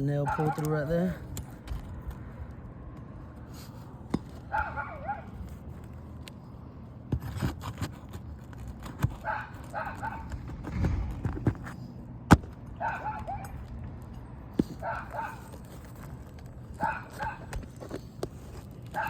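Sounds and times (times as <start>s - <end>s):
dog barking: 0.2s - 1.1s, 4.5s - 5.4s, 9.2s - 10.4s, 12.8s - 13.6s, 14.8s - 15.6s, 16.8s - 17.5s.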